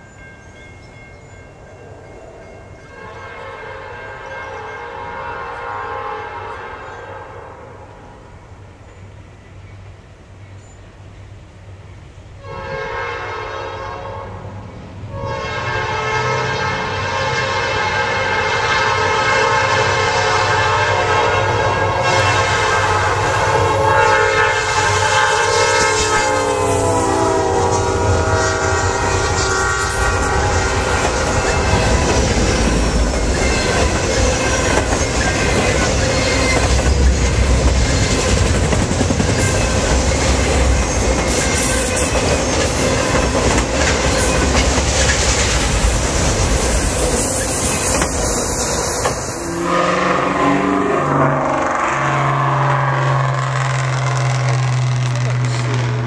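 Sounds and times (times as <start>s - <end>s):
train horn: 2.8s - 8.3s, 12.4s - 38.5s, 49.2s - 56.0s
freight cars clattering on rails: 30.6s - 49.4s.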